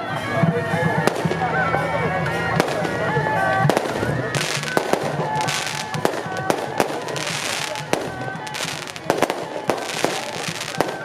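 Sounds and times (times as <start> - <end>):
firecrackers banging: 0.4 - 11.0
stepping melody: 1.0 - 11.0
crackling hiss: 3.7 - 11.0.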